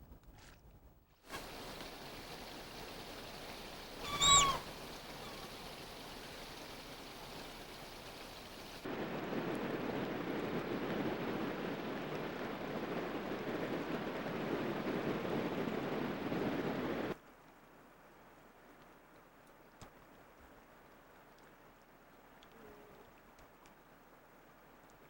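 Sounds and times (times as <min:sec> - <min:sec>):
faint steady hiss: 0:01.1 - 0:25.0
rushing water: 0:01.3 - 0:17.2
high animal call: 0:04.0 - 0:05.6.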